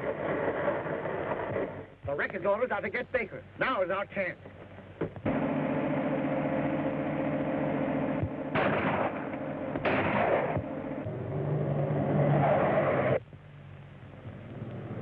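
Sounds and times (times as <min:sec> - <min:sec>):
loud bangs: 0:05.2 - 0:11.2
car engine running: 0:05.3 - 0:15.0.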